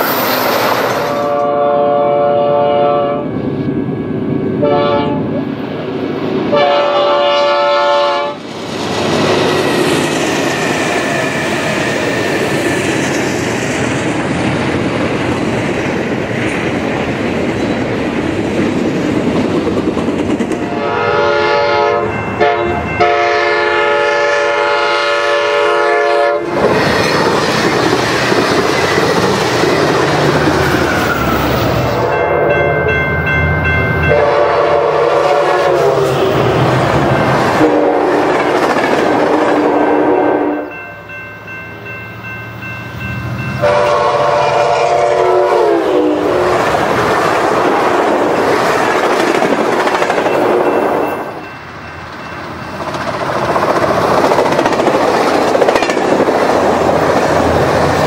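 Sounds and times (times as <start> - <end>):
train air horn blasts: 1.1 - 3.3, 4.6 - 5.3, 6.5 - 8.4, 20.6 - 26.6, 34.0 - 36.8, 37.5 - 38.4, 39.2 - 40.8, 43.6 - 46.5.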